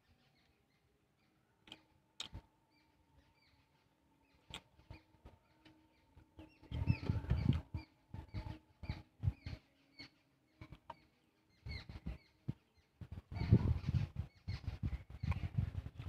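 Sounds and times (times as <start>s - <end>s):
wet chewing and lip smacking: 1.6s - 2.4s.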